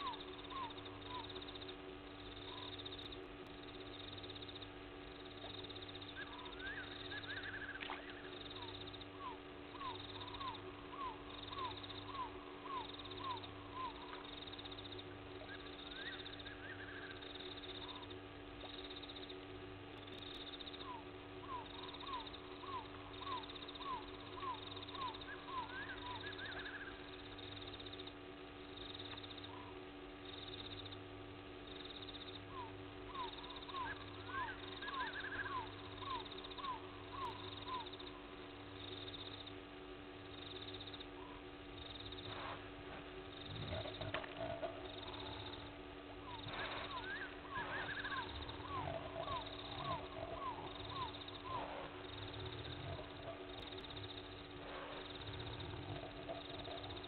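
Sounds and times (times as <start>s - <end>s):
night bird calling: 0.0s - 57.0s
steady hum: 0.0s - 57.0s
higher bird call: 32.5s - 38.2s, 43.6s - 53.9s.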